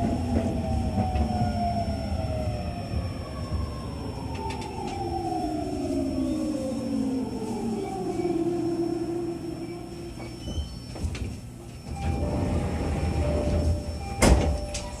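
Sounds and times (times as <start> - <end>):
loud clunk of sliding doors: 10.4 - 15.0
train motor whine: 11.8 - 14.9.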